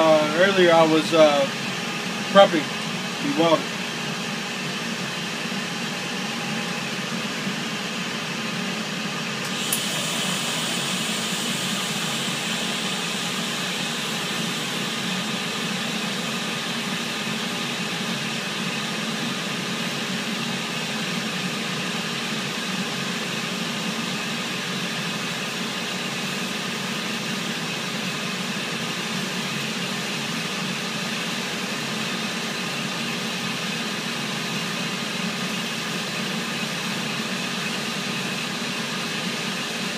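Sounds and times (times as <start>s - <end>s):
ventilation and machinery hum: 0.0s - 39.9s
welding arc click: 9.4s - 10.0s
welding arc hissing: 9.4s - 15.1s.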